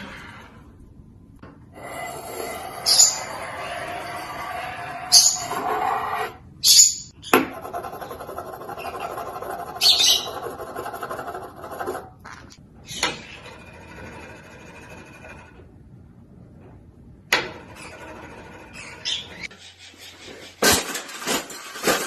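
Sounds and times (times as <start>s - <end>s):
parrot squawking: 9.0s - 10.5s.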